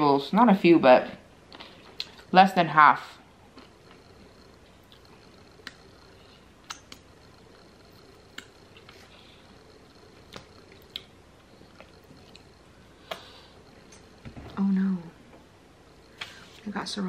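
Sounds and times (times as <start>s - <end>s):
person chewing: 3.5s - 7.1s, 7.9s - 14.2s
wet mouth clicks: 6.6s - 7.0s, 10.3s - 11.2s.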